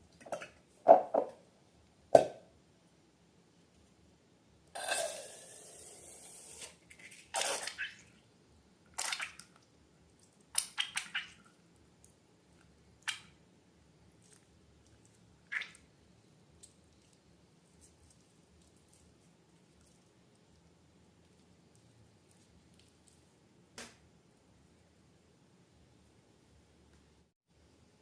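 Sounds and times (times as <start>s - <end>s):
wet slime squishes: 6.8s - 8.2s, 8.9s - 13.4s, 14.1s - 15.9s, 16.5s - 23.4s.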